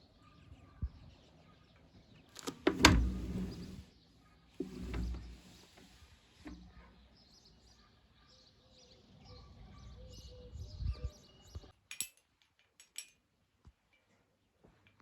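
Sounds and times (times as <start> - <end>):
sharp clicks and knocks: 2.4 - 3.7.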